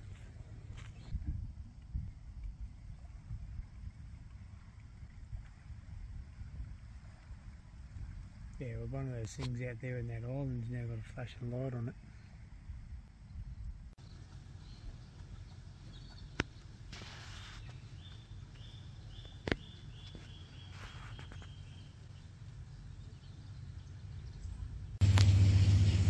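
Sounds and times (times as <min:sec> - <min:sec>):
low steady rumble: 0:00.0 - 0:26.0
loud low rumble: 0:22.6 - 0:26.0.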